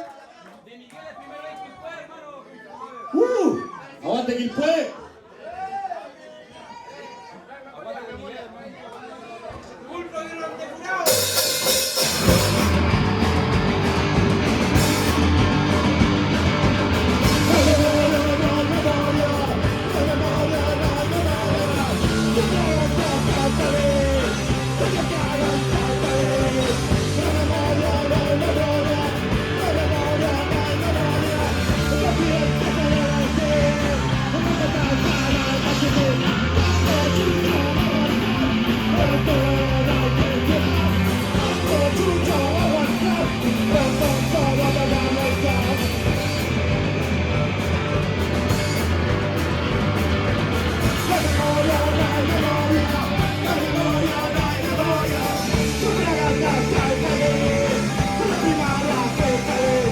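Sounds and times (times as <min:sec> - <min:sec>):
drums: 0:11.0 - 0:59.9
bass: 0:11.1 - 0:59.9
distorted guitars: 0:11.1 - 0:59.9
person singing: 0:17.2 - 0:46.4, 0:50.9 - 0:59.9.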